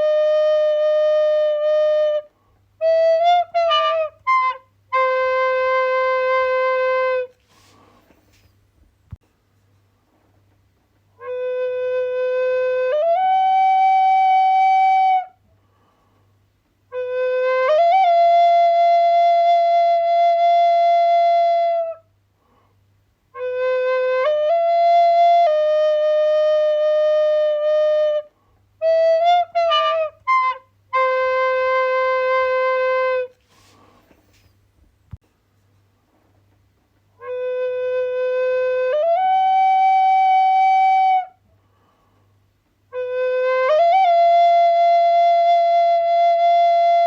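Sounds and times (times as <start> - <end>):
solo wind instrument melody: 0.0 - 8.4, 11.2 - 15.4, 16.9 - 22.1, 23.3 - 33.8, 37.2 - 41.4, 42.9 - 47.0.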